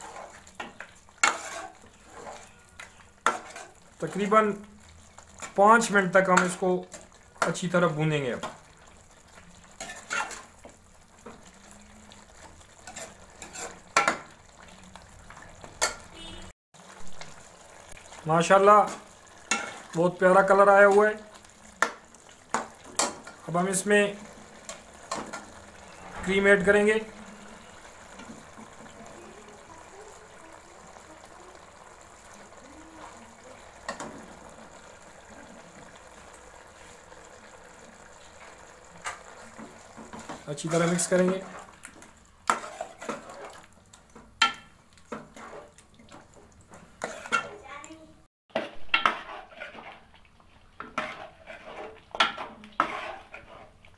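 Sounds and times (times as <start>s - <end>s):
spoon scraping and knocking pan: 0.0s - 3.8s, 6.2s - 7.8s, 9.8s - 11.5s, 12.7s - 14.4s, 15.6s - 16.4s, 18.8s - 27.3s, 33.8s - 34.8s, 38.4s - 47.6s, 48.5s - 53.9s
faint sizzle: 0.0s - 53.9s.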